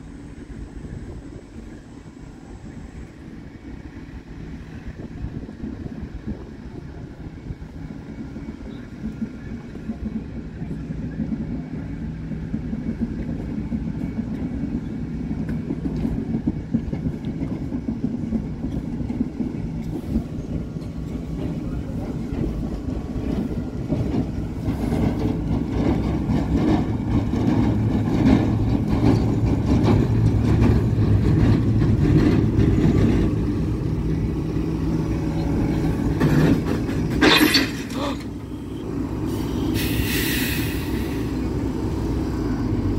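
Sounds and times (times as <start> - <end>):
diesel engine running on track: 0.1 - 42.9
sharp hiss: 39.3 - 41.4.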